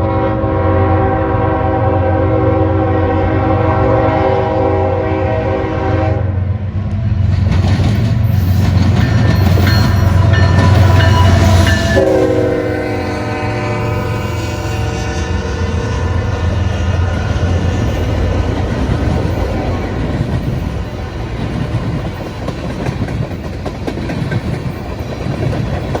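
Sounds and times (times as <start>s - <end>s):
train air horn: 0.0s - 6.5s, 9.8s - 18.6s
diesel locomotives rumbling past: 0.0s - 26.0s
high wheel squeals: 8.2s - 12.2s.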